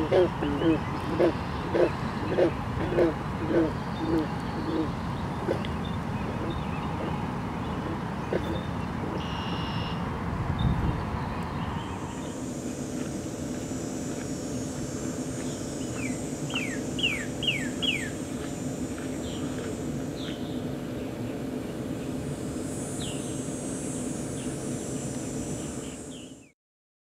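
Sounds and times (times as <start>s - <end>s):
low background hum: 0.0s - 26.5s
small birds chirping: 14.5s - 22.2s.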